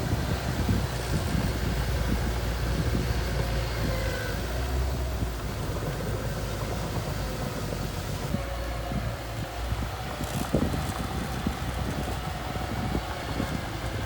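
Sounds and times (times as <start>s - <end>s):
bulldozer engine running: 0.0s - 14.0s.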